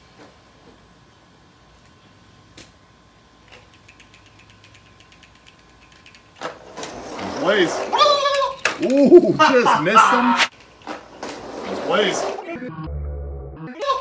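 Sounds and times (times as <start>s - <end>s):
mechanical clicking: 3.4s - 6.5s.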